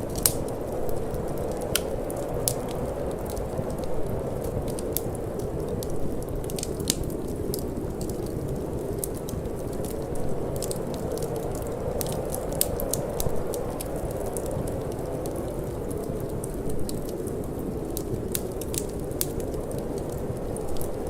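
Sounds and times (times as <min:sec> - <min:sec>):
low rush of wind: 0:00.0 - 0:21.0
wood fire crackling and popping: 0:00.0 - 0:21.0.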